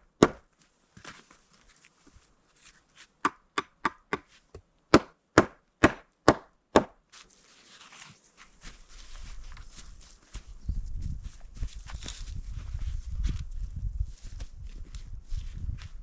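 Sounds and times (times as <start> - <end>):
wood being chopped: 0.1 - 0.5, 3.2 - 4.3, 4.9 - 7.0.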